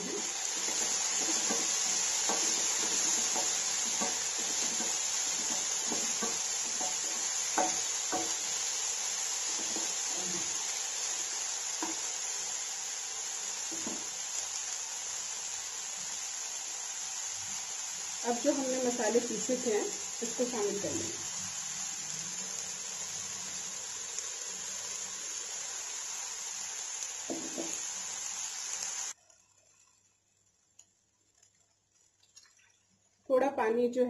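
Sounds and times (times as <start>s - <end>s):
wooden spatula scraping a pan: 0.0s - 8.6s, 9.4s - 10.6s, 13.7s - 14.1s
vegetables sizzling in oil: 0.0s - 30.4s.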